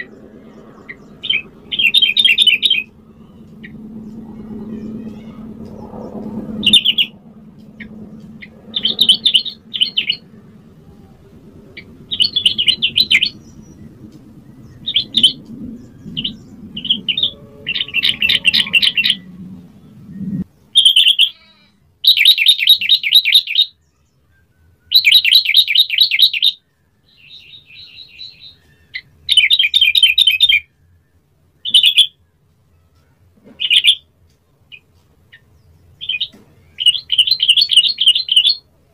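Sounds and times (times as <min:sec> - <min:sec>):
bird singing chattering notes: 0:00.0 - 0:05.8, 0:06.6 - 0:10.3, 0:11.8 - 0:19.3, 0:34.7 - 0:38.6
low steady hum: 0:00.0 - 0:22.1.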